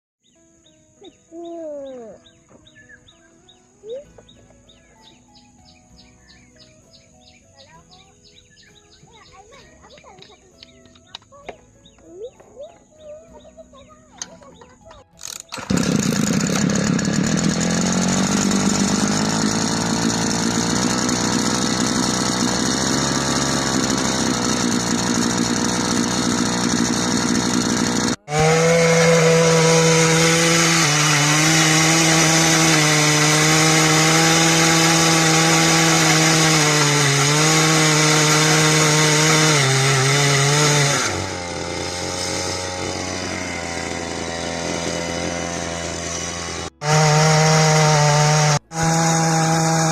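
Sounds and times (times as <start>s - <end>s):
earth auger engine running: 15.2s - 49.9s.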